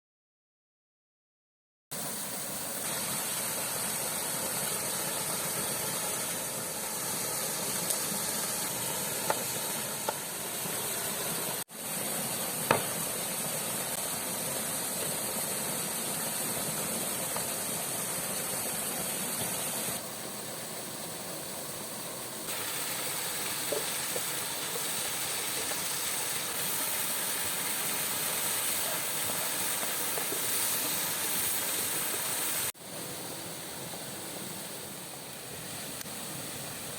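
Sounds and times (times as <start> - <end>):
waterfall rushing: 15.6 - 36.9.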